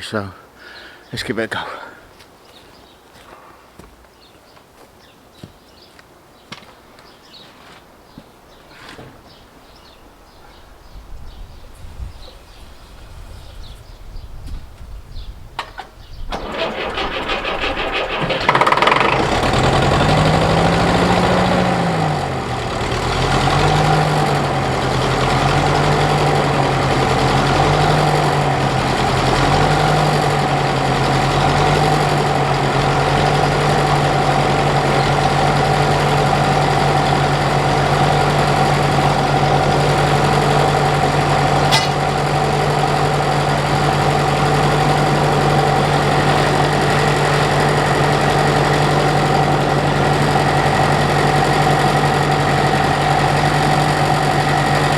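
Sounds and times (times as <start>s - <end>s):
diesel engine idling: 16.3s - 54.9s.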